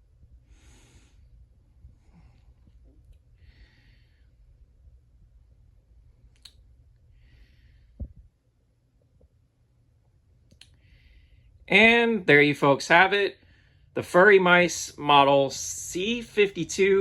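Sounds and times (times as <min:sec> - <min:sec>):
low hum: 0:00.0 - 0:11.7
short breaths: 0:03.4 - 0:04.4, 0:10.7 - 0:11.6.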